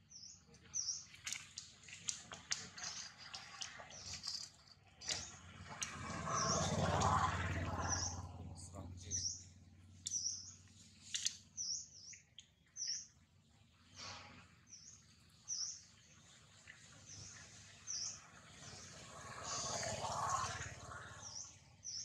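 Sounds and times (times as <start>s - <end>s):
small bird chirping: 9.0s - 13.1s.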